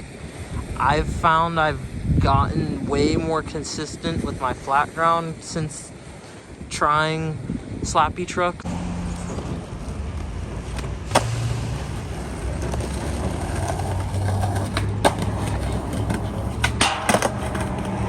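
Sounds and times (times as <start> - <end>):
skateboard wheels rolling on pavement: 8.6 - 18.0
skateboard clacks: 10.7 - 18.0.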